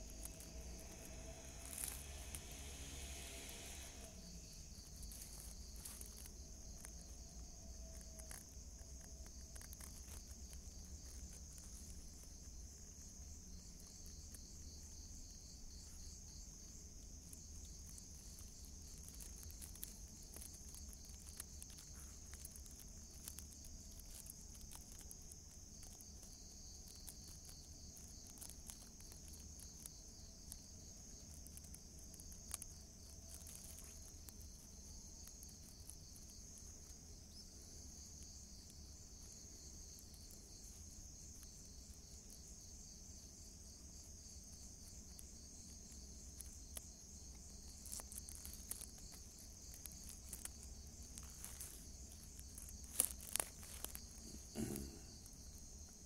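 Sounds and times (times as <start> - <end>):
low hum: 0.0 - 5.7
faint ticks: 0.0 - 56.0
insects trilling: 0.0 - 56.0.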